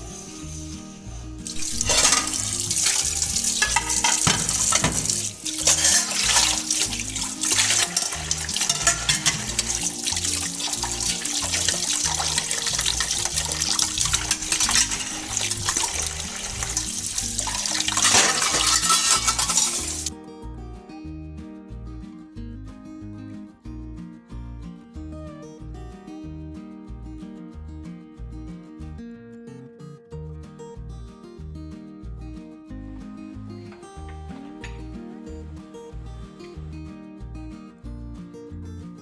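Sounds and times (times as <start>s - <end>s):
background music: 0.0s - 31.0s, 32.0s - 39.0s
tap water running into sink: 1.5s - 20.1s.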